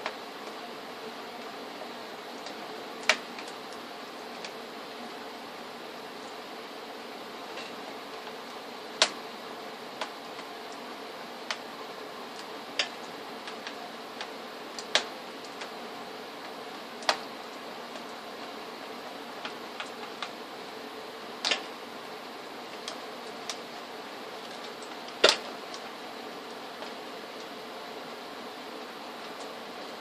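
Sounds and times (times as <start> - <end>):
faint hum: 0.0 - 30.0
steady hiss: 0.0 - 30.0
small clicks and taps: 2.4 - 4.6, 12.4 - 15.8, 16.4 - 17.3, 21.4 - 21.7.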